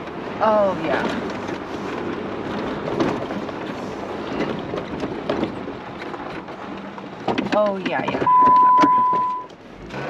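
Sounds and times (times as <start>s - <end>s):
vehicle road noise on dirt trail: 0.0s - 10.0s
small knocks and rattles: 0.9s - 8.6s.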